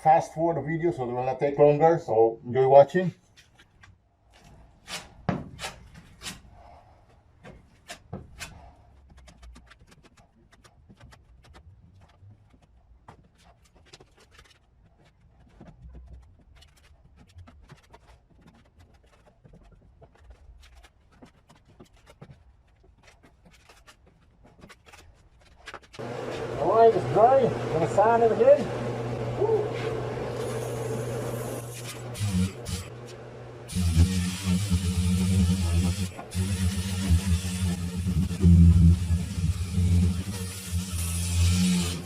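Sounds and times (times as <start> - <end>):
spreader scraping body filler: 23.0 - 42.0.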